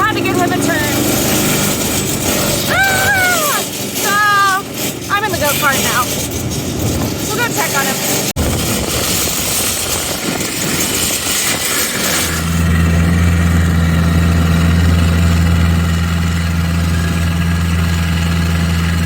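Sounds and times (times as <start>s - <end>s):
vehicle engine drone: 0.0s - 19.0s
rushing wind-like noise: 5.8s - 13.9s.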